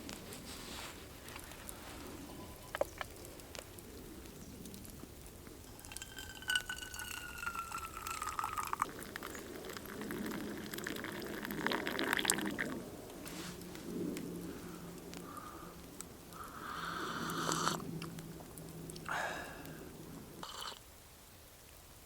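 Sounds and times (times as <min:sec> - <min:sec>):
splashing: 0:05.6 - 0:12.7
liquid pouring with falling tone: 0:05.6 - 0:12.8.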